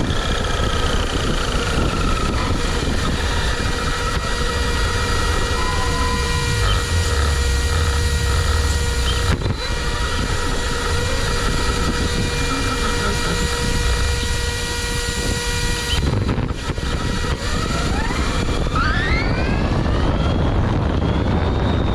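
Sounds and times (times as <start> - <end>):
wind: 0.0 - 21.9
electrical hum: 0.9 - 17.3
low rumble: 1.1 - 17.1.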